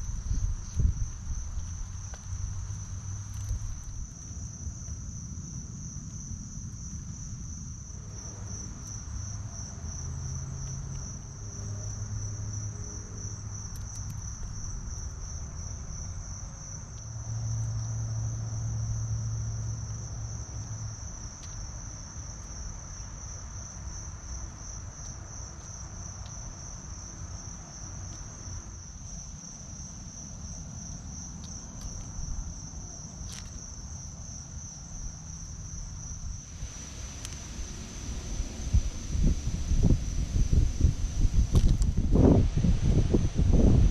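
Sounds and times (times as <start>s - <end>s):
low rumble: 0.0s - 4.1s, 36.0s - 43.9s
crickets chirping: 0.0s - 43.9s.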